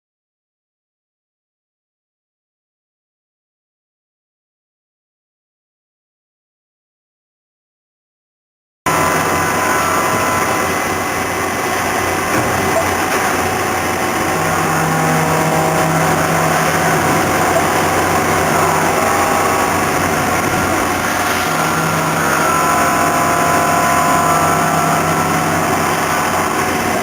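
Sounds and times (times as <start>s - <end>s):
machine mechanical hum: 8.9s - 27.0s
motor tone with whine: 8.9s - 27.0s.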